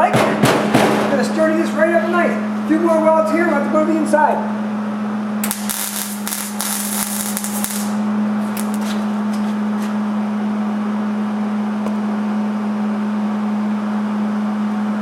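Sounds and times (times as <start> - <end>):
steady hum: 0.0 - 14.6
arc welding crackle: 5.4 - 9.6.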